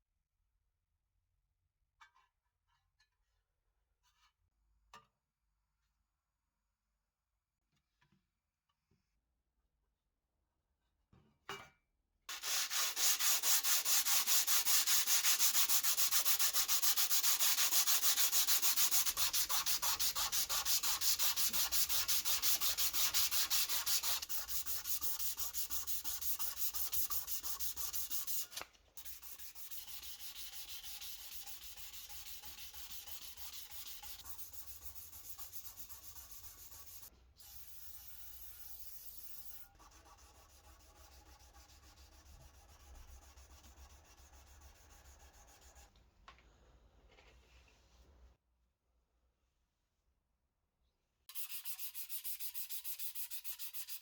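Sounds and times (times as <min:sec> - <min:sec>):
hand sanding strokes: 0:12.3 - 0:45.9, 0:51.3 - 0:54.0.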